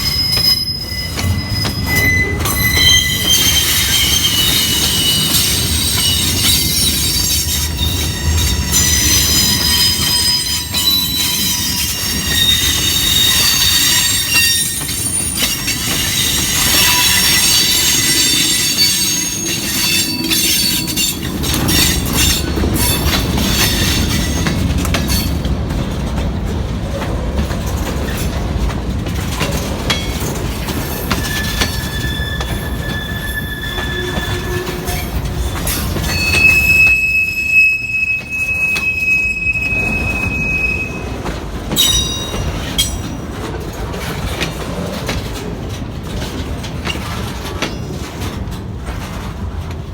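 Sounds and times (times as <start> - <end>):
steel wheels squealing: 0.0 - 25.5, 29.4 - 43.4
wheels clicking over rail joints: 0.0 - 37.2, 41.0 - 49.9
train rumbling on rails: 0.0 - 49.9.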